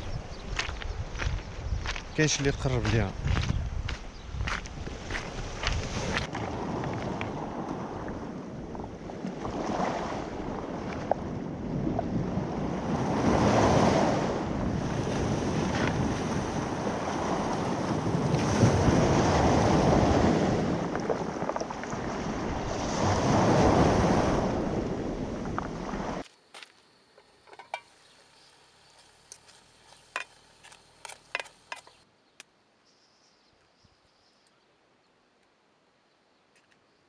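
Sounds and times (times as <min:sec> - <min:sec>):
wind rumbling on microphone: 0:00.0 - 0:26.3
sea waves washing onto shore: 0:05.1 - 0:26.2.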